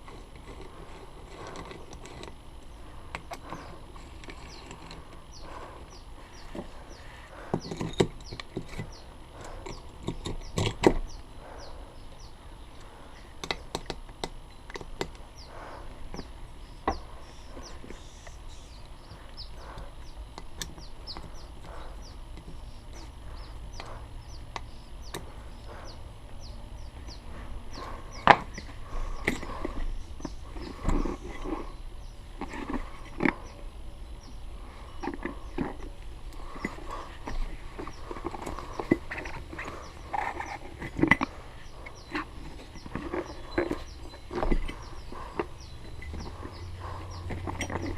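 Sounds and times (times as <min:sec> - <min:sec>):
tools clicking and knocking: 0:07.5 - 0:11.1.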